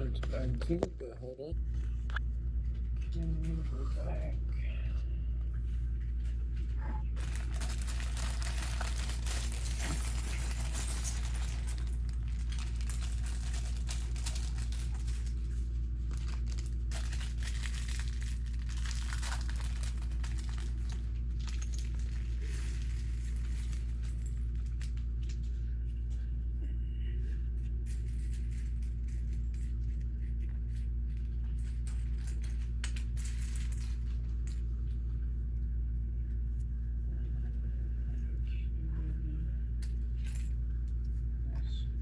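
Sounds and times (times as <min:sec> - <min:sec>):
low hum: 0:00.0 - 0:42.0
plastic bag crinkling: 0:07.2 - 0:21.7.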